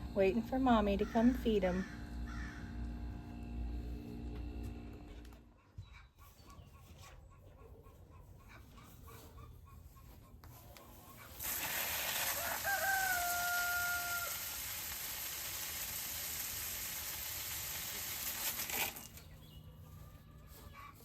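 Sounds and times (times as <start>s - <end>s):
rooster crowing: 1.8s - 2.8s, 11.6s - 14.8s
loud steady hiss: 11.4s - 19.0s.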